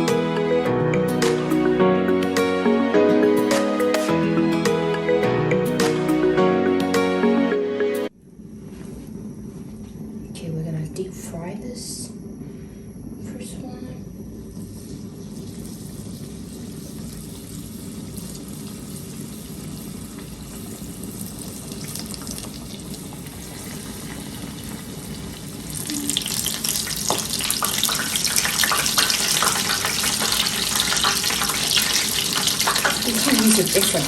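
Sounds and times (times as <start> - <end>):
low steady hum: 8.1 - 28.0
deep-frying sizzle and crackling: 14.5 - 34.0.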